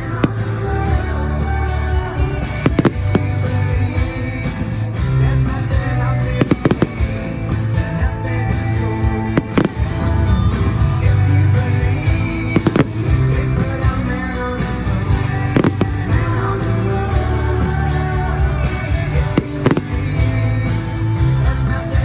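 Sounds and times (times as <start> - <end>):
loud music: 0.0 - 22.0.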